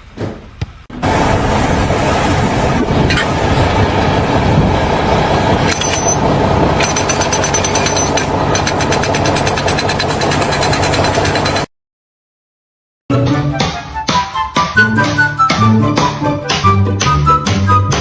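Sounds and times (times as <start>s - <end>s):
loud machinery rumbling: 0.0s - 11.7s
rapid even rattle: 5.7s - 11.7s.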